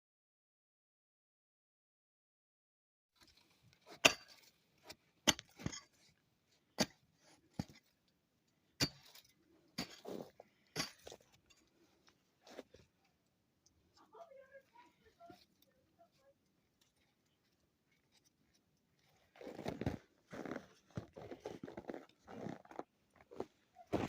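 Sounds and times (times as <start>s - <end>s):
pick striking snow and ice: 3.3s - 6.1s, 6.8s - 7.9s, 8.8s - 11.4s
snow crunching and scraping: 9.8s - 11.2s, 19.3s - 24.0s.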